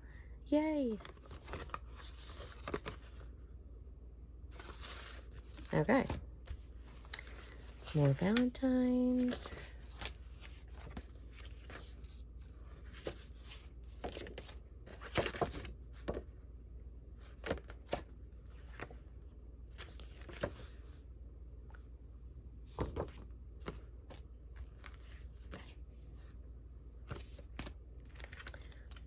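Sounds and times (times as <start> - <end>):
faint low hum: 0.0 - 29.0
paper cards rustling: 0.8 - 3.3, 4.5 - 16.3, 17.2 - 19.0, 19.7 - 21.0, 22.7 - 26.4, 27.0 - 29.0.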